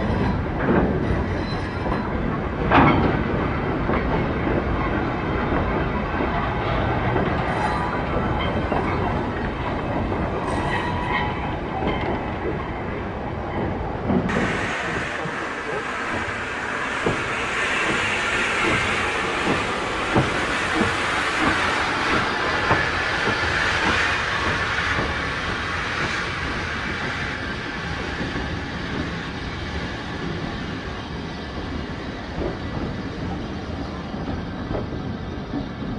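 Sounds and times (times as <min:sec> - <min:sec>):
low train rumble: 0:00.0 - 0:35.9
train wheels clattering: 0:00.0 - 0:35.9
hiss with sharp clicks: 0:14.3 - 0:30.7.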